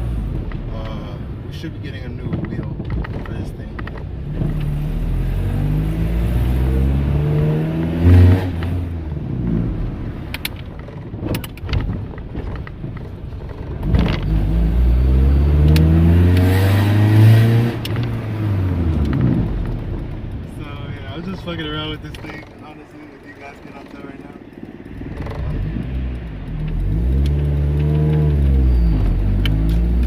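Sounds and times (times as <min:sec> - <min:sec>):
car engine revving: 0:00.0 - 0:30.0
car knocks and rattles: 0:00.2 - 0:04.7, 0:09.9 - 0:14.4, 0:17.8 - 0:28.4
gear change thump: 0:00.2 - 0:04.9, 0:07.0 - 0:30.0.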